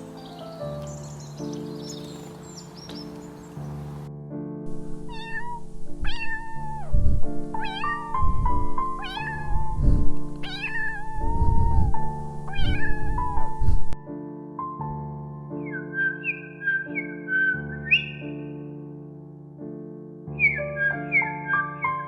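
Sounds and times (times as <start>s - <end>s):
background music: 0.0s - 6.6s, 7.3s - 22.0s
cat meowing: 5.0s - 13.6s.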